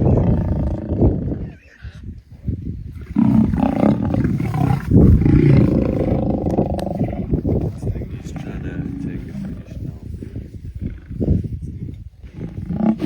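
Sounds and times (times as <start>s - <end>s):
lions roaring: 0.0s - 1.4s, 3.0s - 7.3s, 12.3s - 13.0s.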